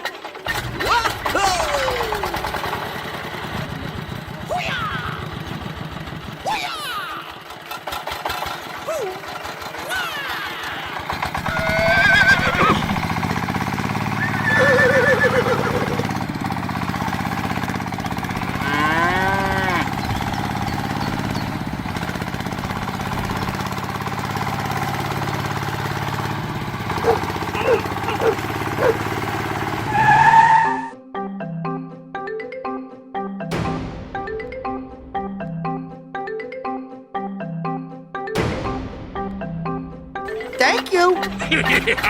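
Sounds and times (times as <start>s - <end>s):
small engine running: 0.0s - 30.4s
rising and falling calls: 10.0s - 12.7s, 27.0s - 30.9s.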